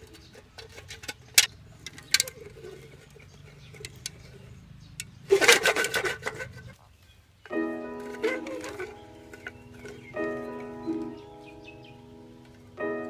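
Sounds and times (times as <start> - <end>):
clattering rattle: 0.0 - 6.8, 8.0 - 11.5
sharp clicks: 3.2 - 6.4.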